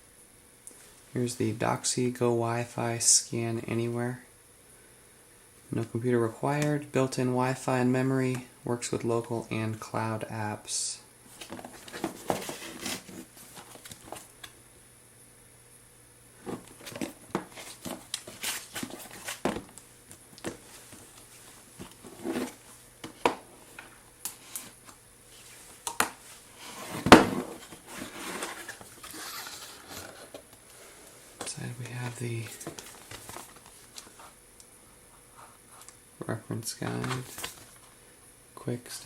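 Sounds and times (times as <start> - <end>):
cardboard packaging being handled: 11.3 - 14.3, 16.4 - 19.8, 20.4 - 30.5, 36.9 - 37.9.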